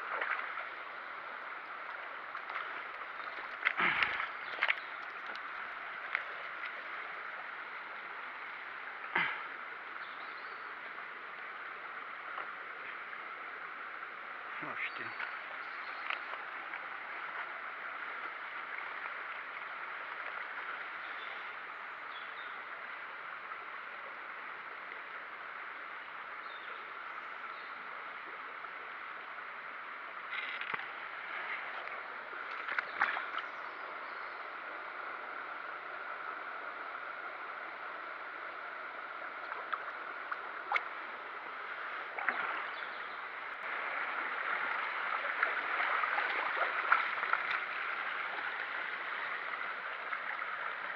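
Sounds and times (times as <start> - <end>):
stream water rushing: 0.0 - 50.9.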